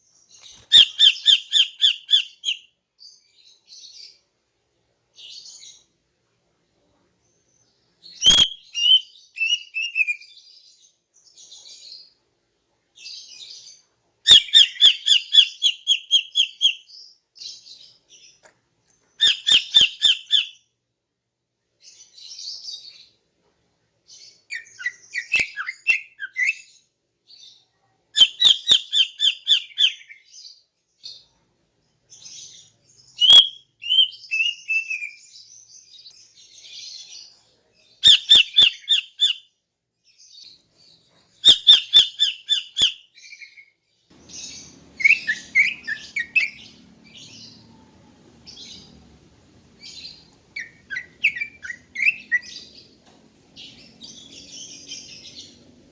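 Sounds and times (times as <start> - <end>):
bird high chirps: 0.3 - 4.2, 8.1 - 10.5, 13.0 - 18.4, 19.1 - 20.7, 24.1 - 26.8, 28.2 - 31.3, 32.1 - 37.4, 38.0 - 39.5, 40.3 - 55.9.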